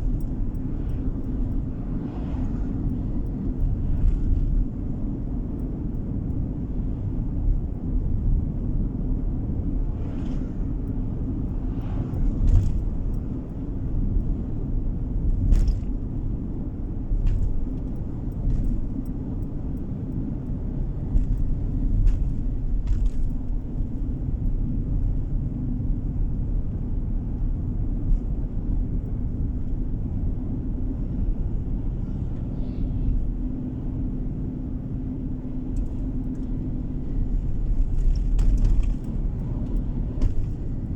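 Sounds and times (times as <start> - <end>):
car interior road rumble: 0.0 - 40.9.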